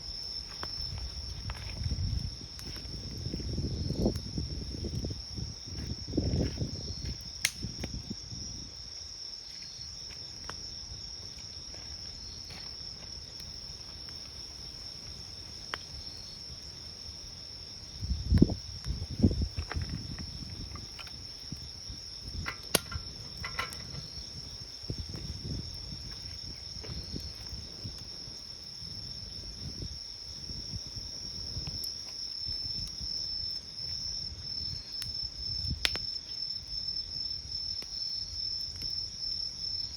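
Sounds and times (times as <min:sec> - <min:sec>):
campfire crackling and popping: 0:00.0 - 0:39.9
crickets trilling: 0:00.0 - 0:39.9.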